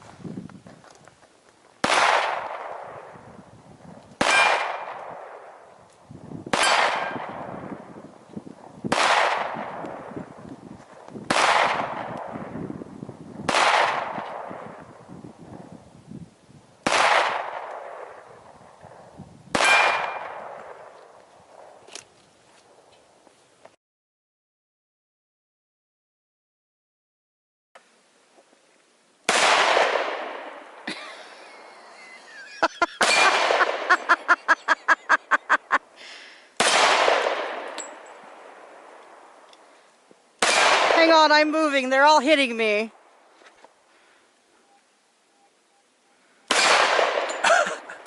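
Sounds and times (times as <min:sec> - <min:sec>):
pistol shots: 0:01.8 - 0:03.0, 0:04.2 - 0:05.5, 0:06.5 - 0:07.5, 0:08.9 - 0:10.2, 0:11.3 - 0:12.4, 0:13.5 - 0:14.8, 0:16.8 - 0:18.2, 0:19.5 - 0:20.9, 0:29.3 - 0:30.6, 0:33.0 - 0:33.9, 0:36.6 - 0:38.1, 0:40.4 - 0:41.0, 0:46.5 - 0:47.4.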